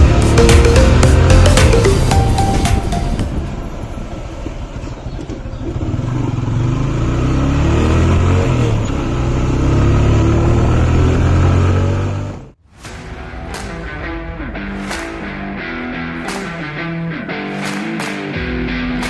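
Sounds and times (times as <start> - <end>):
motorcycle engine revving: 0.0 - 2.2, 3.3 - 12.6.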